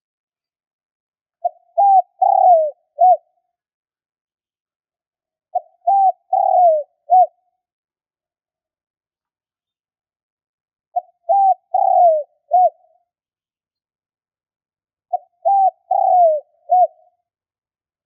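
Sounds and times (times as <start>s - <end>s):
dove cooing: 1.4s - 3.3s, 5.5s - 7.4s, 11.0s - 12.9s, 15.1s - 17.1s.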